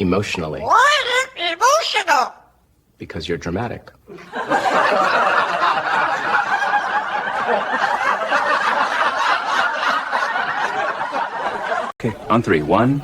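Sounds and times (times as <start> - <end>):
crowd laughing: 4.1 - 12.7.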